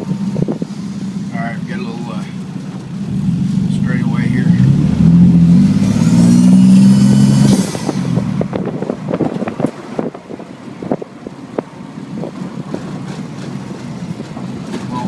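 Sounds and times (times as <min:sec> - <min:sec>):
car engine pulling hard: 0:00.0 - 0:15.0
crackling wind buffeting: 0:07.5 - 0:14.8.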